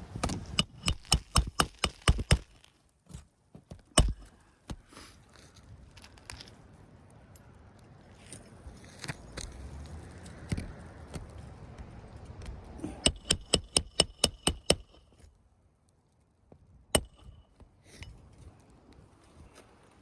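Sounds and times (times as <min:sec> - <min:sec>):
hammer striking roofing nail: 0:00.1 - 0:02.6, 0:04.0 - 0:04.4, 0:13.0 - 0:15.0, 0:17.0 - 0:17.4.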